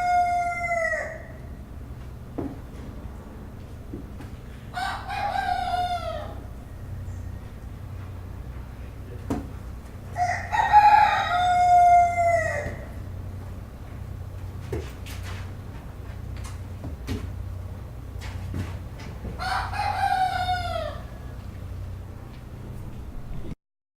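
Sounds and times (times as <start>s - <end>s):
rooster crowing: 0.0s - 1.6s, 4.7s - 7.6s, 10.1s - 13.2s, 19.4s - 21.5s
low farmyard hum: 0.0s - 23.6s
short knocks: 9.2s - 9.7s.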